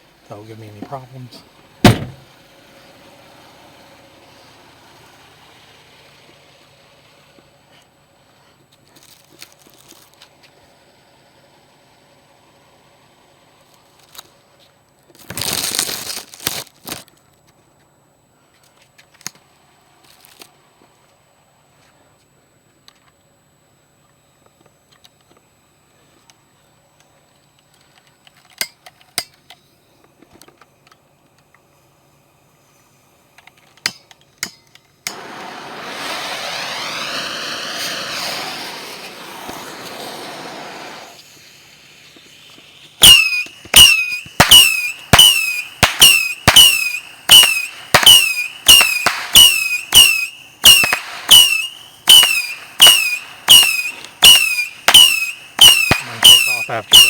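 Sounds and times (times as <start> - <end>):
firework shots: 0.3 - 2.4, 35.1 - 57.0
firework hissing: 15.3 - 16.6, 35.1 - 57.0
falling whistle: 35.1 - 41.3, 42.2 - 57.0.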